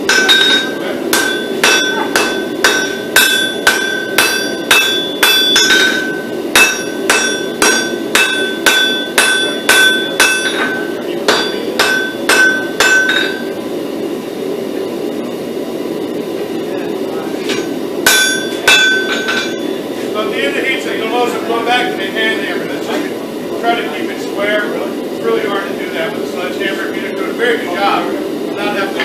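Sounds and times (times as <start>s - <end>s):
hammer striking steel on anvil: 0.0s - 13.5s, 17.5s - 19.6s.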